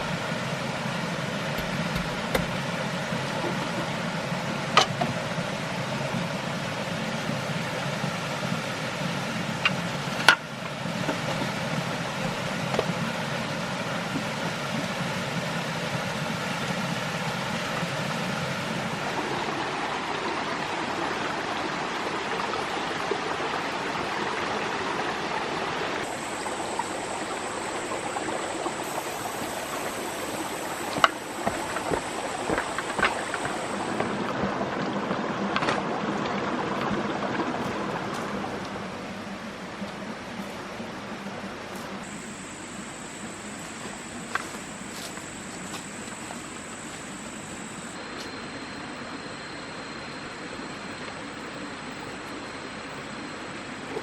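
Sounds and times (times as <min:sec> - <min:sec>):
rushing water: 0:00.0 - 0:48.1
high steady tone: 0:26.0 - 0:34.3, 0:42.0 - 0:50.2.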